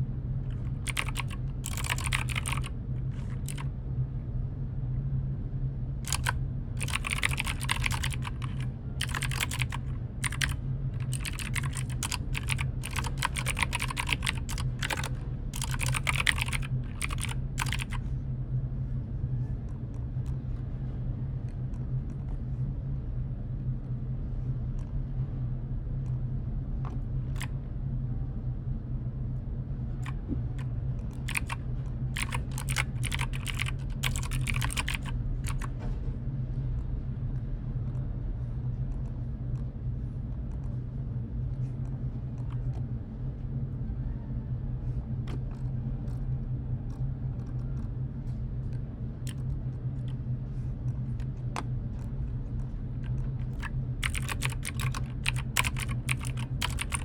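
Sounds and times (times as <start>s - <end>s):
steady low hum: 0.0s - 57.0s
typing on computer keyboard: 0.5s - 3.7s, 6.1s - 18.0s, 27.3s - 27.5s, 30.0s - 35.8s, 45.3s - 45.6s, 49.2s - 50.2s, 53.0s - 57.0s.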